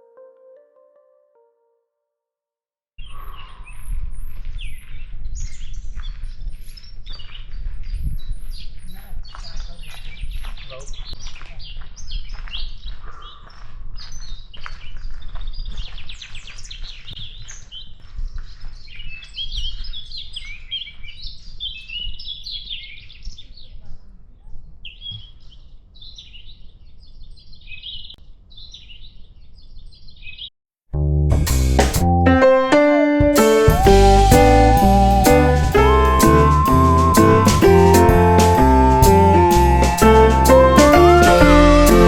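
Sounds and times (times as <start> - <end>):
music: 0.0 - 1.8, 31.0 - 42.0.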